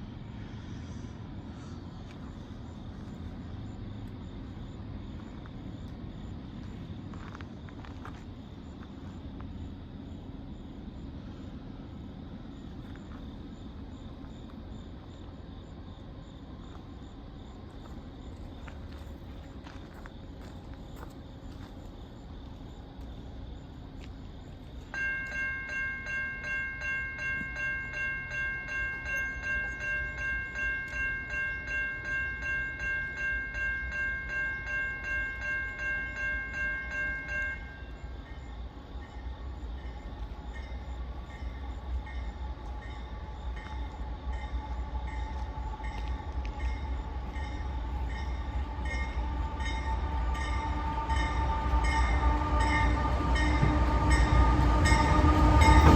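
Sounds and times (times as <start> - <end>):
train rumbling: 0.0 - 55.9
railroad crossing bell ringing: 24.9 - 55.9.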